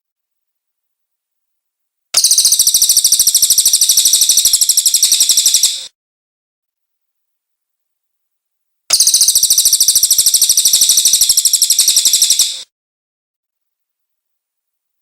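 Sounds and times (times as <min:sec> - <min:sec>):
bird trilling: 0:02.2 - 0:05.9, 0:08.9 - 0:12.6.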